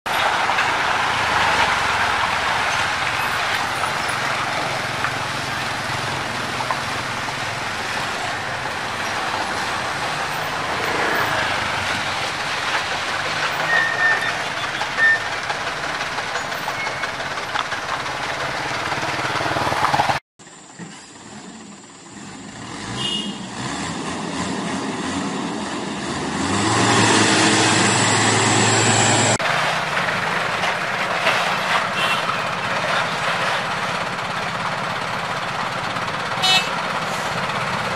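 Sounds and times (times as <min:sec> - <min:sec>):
trucks driving on rough road: 0:00.0 - 0:37.9
short high squeaks: 0:13.6 - 0:15.4.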